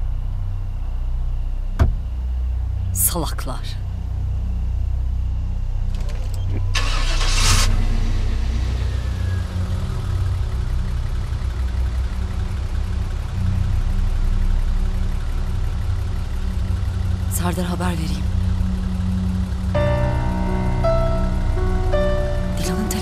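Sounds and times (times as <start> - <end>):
car engine starting and idling: 4.6 - 23.0.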